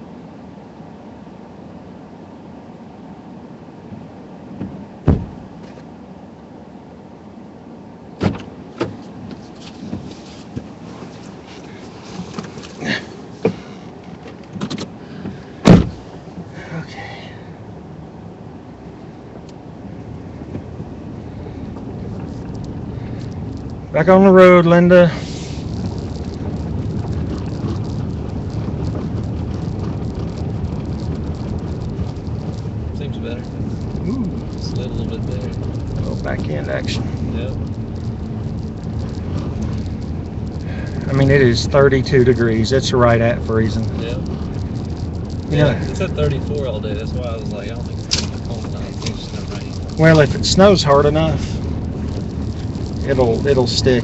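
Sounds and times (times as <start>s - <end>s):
low cabin hum: 0.0s - 54.0s
road and tyre rumble: 0.0s - 54.0s
thumps and clunks in car: 4.5s - 5.9s, 8.2s - 17.0s, 20.3s - 23.9s, 25.6s - 54.0s
faint irregular ticks: 21.7s - 23.8s, 25.1s - 54.0s.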